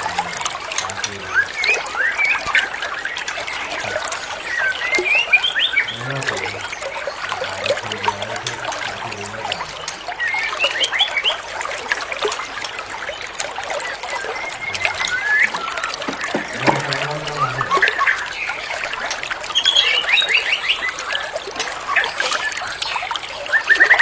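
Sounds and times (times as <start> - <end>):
water trickling: 0.0 - 24.0
high bird chirps: 13.8 - 18.8, 19.5 - 24.0.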